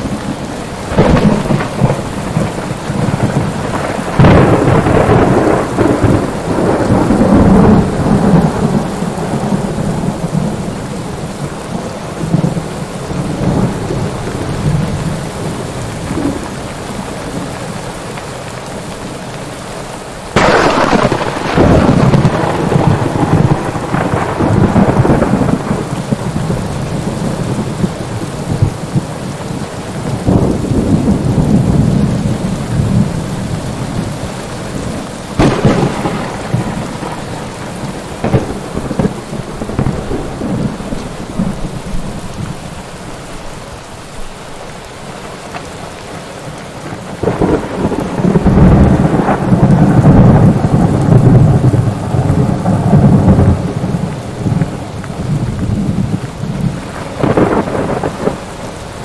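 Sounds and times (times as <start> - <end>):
thunderclaps rumbling: 0.0 - 17.7, 20.3 - 43.6, 46.6 - 59.0
heavy rain: 0.0 - 59.0.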